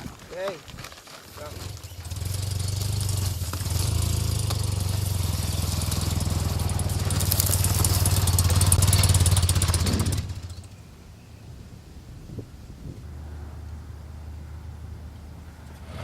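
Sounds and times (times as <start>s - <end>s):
motorcycle engine running: 1.4s - 10.8s.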